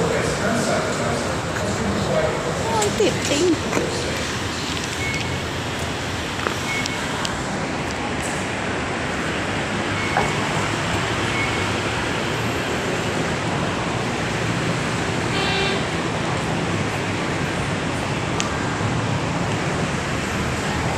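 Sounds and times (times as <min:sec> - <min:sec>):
city traffic noise: 0:00.0 - 0:20.9
short pitched horn toot: 0:15.3 - 0:16.0.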